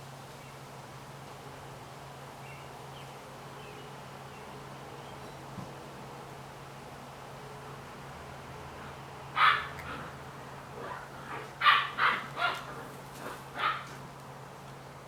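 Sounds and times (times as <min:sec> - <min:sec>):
puppy barking: 0:09.4 - 0:10.1, 0:10.8 - 0:13.9.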